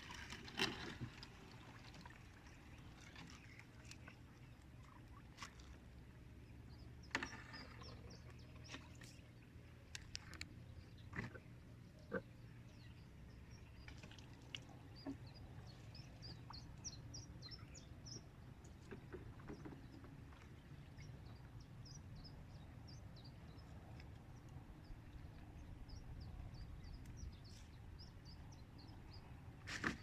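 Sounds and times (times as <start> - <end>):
small birds chirping: 6.1 - 29.6.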